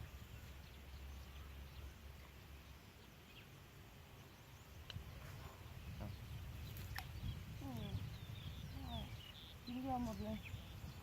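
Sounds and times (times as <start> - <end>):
wind rumble on microphone: 4.6 - 11.0
bird chirps: 5.9 - 11.0.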